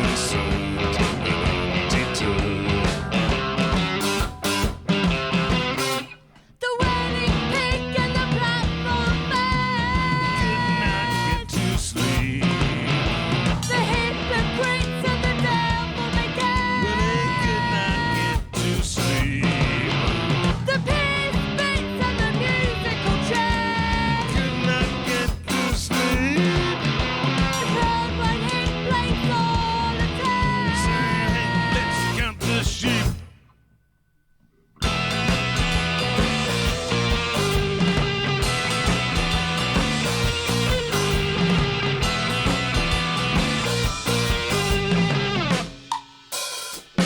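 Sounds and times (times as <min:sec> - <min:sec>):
electric guitar: 0:00.0 - 0:33.3, 0:34.8 - 0:46.0
rock band playing live: 0:00.0 - 0:33.3, 0:34.8 - 0:47.0
drums: 0:00.0 - 0:33.6, 0:34.4 - 0:47.0.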